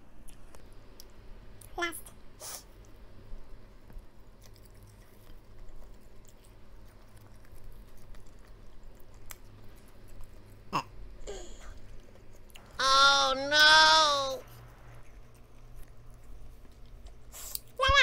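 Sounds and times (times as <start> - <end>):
chewing food close up: 3.8 - 12.8, 14.4 - 17.8
soft mouth clicks and squishes: 14.5 - 17.8.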